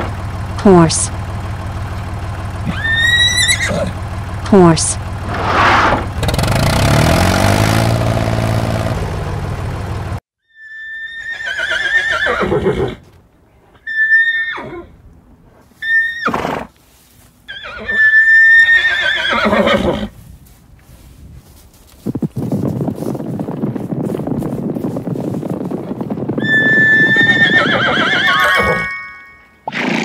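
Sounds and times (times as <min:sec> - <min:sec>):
engine sound effect rising: 0:00.0 - 0:10.2
horse whinnying: 0:02.6 - 0:04.0, 0:10.6 - 0:13.1, 0:13.8 - 0:15.0, 0:15.8 - 0:16.7, 0:17.5 - 0:20.1, 0:26.4 - 0:28.9, 0:29.6 - 0:30.0.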